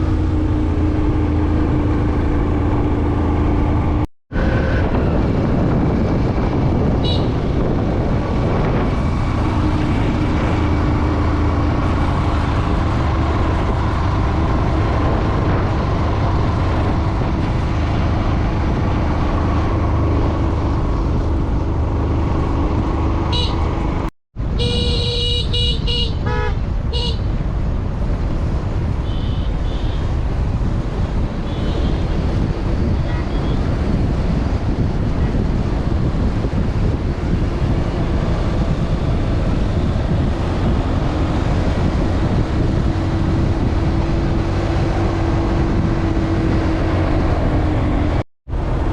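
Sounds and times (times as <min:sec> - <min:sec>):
road and wind noise: 0:00.0 - 0:48.9
vehicle horn tooting: 0:07.0 - 0:07.4, 0:23.3 - 0:23.7, 0:24.6 - 0:27.3, 0:29.0 - 0:30.1.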